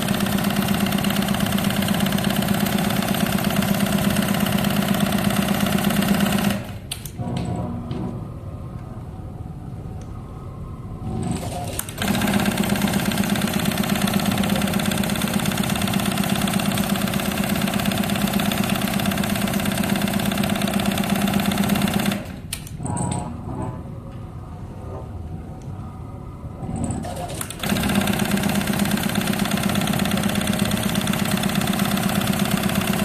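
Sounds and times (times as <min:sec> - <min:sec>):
sewing machine stitching: 0:11.2 - 0:23.2, 0:27.0 - 0:33.0.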